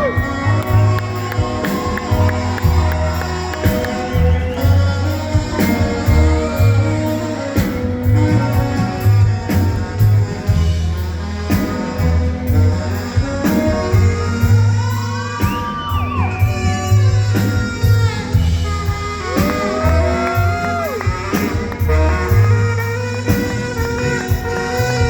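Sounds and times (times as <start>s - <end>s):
instrumental rock band playing: 0.0s - 25.0s.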